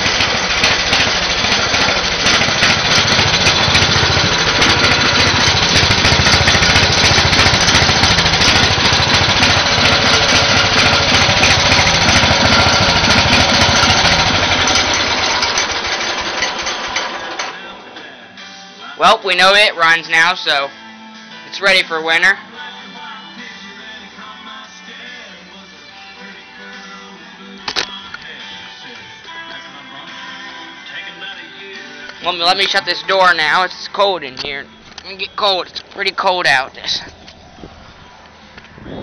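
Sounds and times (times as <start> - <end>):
garden tractor engine running: 0.0 - 18.0, 32.1 - 39.0.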